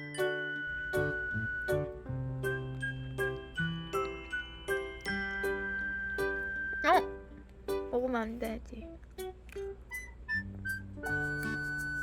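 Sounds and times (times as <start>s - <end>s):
playful tune of ringing notes: 0.0s - 7.3s.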